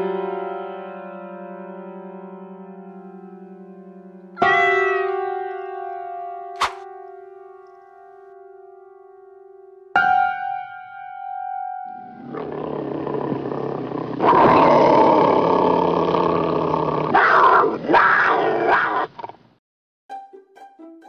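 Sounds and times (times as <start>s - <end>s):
animal growling roar: 12.0s - 19.4s.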